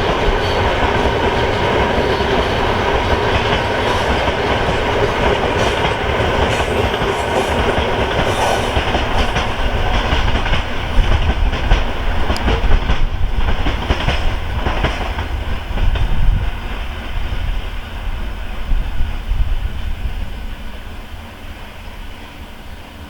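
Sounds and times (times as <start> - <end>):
freight train wagons rolling: 0.0 - 16.0.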